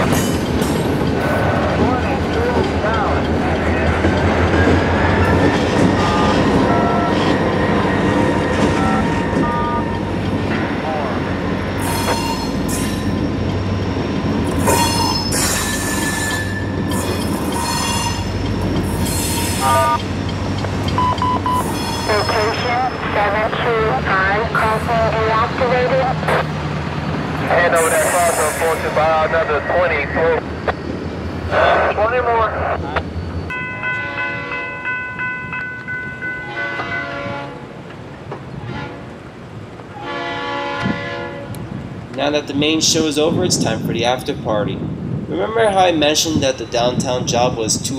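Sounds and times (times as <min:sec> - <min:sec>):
freight cars rolling: 0:00.0 - 0:33.0
diesel locomotive rumble: 0:00.0 - 0:34.5
freight car wheels squealing: 0:14.5 - 0:20.0
locomotive horn chord: 0:36.4 - 0:37.7, 0:38.6 - 0:39.0, 0:40.0 - 0:41.6.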